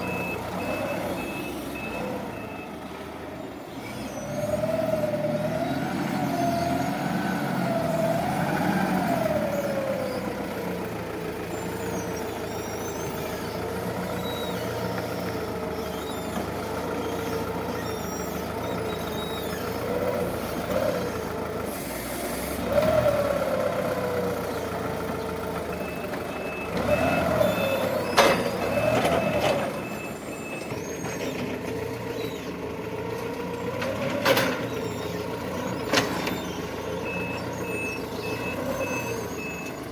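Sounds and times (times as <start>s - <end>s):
forklift motor whining: 3.7s - 39.9s.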